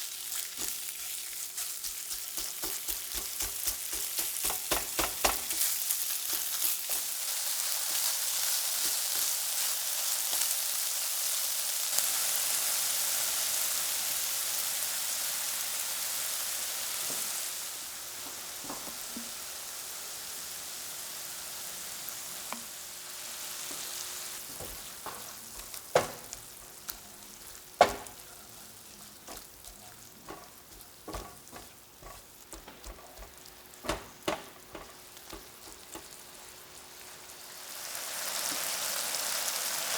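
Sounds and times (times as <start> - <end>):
food sizzling in a frying pan: 0.0 - 39.9
utensil knocking on pan: 2.0 - 7.1, 18.2 - 19.4, 24.5 - 26.8, 27.8 - 28.4, 29.2 - 36.3.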